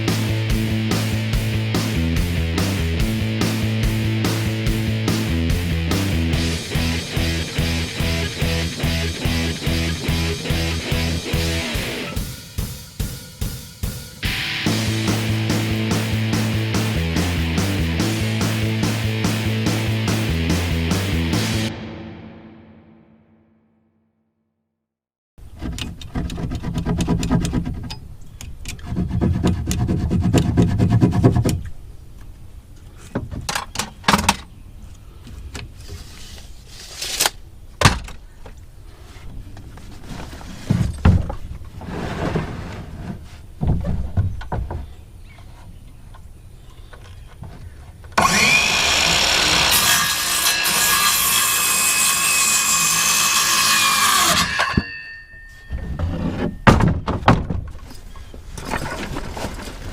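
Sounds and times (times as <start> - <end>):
power tool whining: 48.2 - 54.8.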